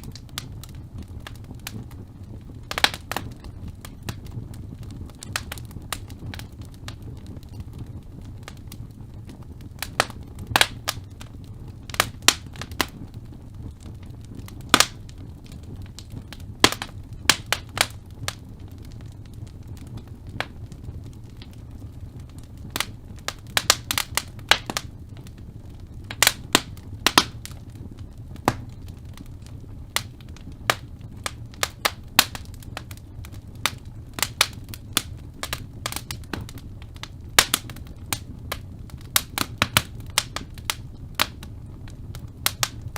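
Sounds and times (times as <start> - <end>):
burning logs crackling and popping: 0.0 - 42.9
fire flames rumbling: 0.0 - 42.9.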